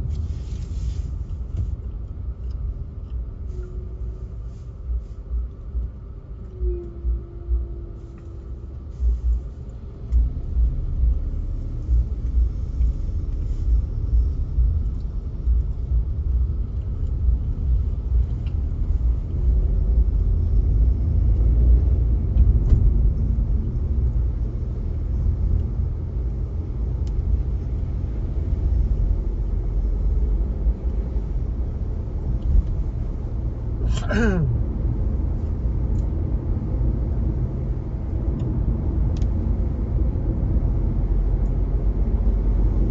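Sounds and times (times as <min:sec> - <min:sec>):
car driving rumble: 0:00.0 - 0:42.9.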